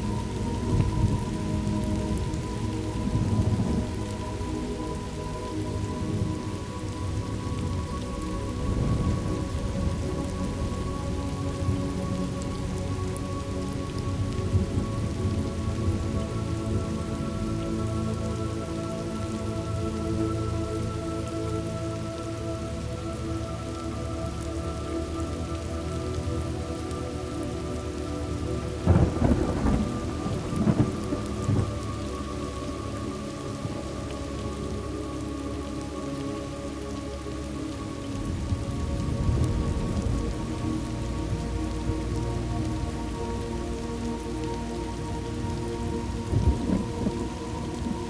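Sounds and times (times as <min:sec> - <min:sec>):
soft held music tones: 0:00.0 - 0:48.0
steady rain: 0:00.0 - 0:48.0
low rumble of thunder: 0:00.4 - 0:04.2, 0:08.4 - 0:12.0, 0:28.8 - 0:32.2, 0:45.8 - 0:48.0
thunder rumbling: 0:28.8 - 0:32.2, 0:45.9 - 0:48.0.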